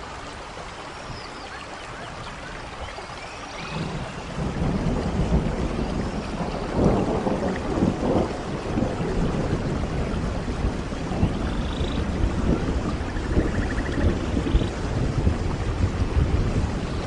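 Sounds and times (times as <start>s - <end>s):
steady rain: 0.0s - 17.0s
thunder rumbling: 3.6s - 17.0s.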